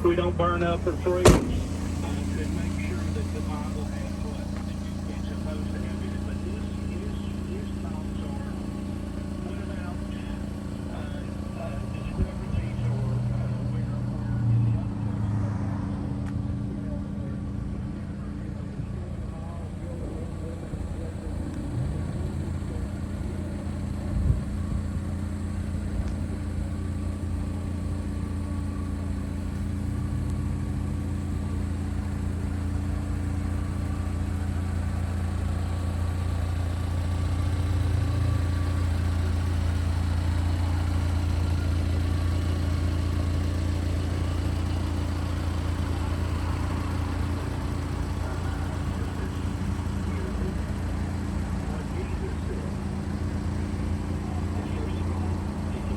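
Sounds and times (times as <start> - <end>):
truck engine humming: 0.0 - 55.9
thump: 1.0 - 2.6.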